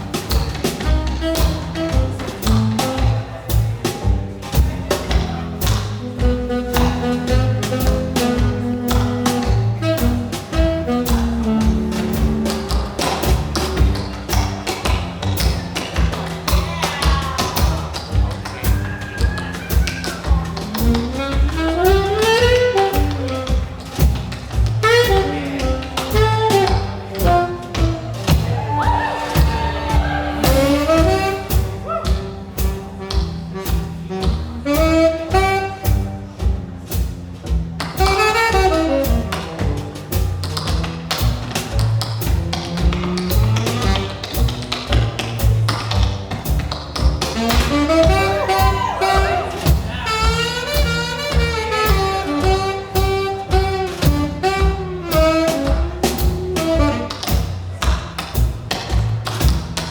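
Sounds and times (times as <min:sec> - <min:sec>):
double bass: 0:00.0 - 0:59.9
drums swing beat: 0:00.0 - 0:59.9
saxophone melody: 0:00.8 - 0:03.5, 0:06.0 - 0:13.0, 0:20.6 - 0:36.4, 0:38.0 - 0:40.1, 0:47.2 - 0:57.5.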